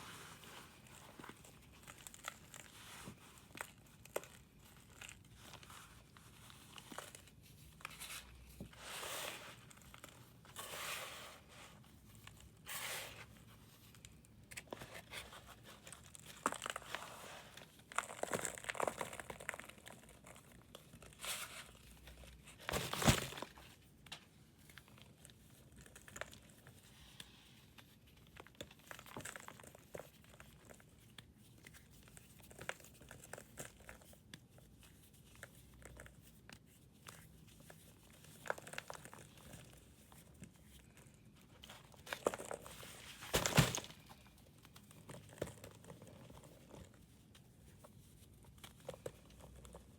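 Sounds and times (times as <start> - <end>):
pressed powder scraping and crunching: 0.0 - 13.9, 14.8 - 22.7.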